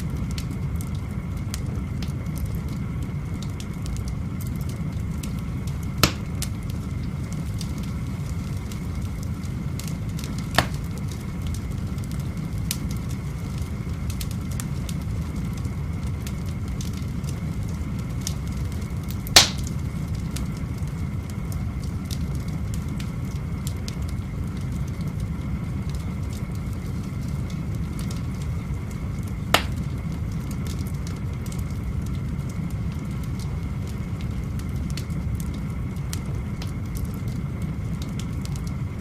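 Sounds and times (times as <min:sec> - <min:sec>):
fire crackling: 0:00.0 - 0:39.0
wood fire popping: 0:00.0 - 0:39.0
fire rushing: 0:00.4 - 0:39.0.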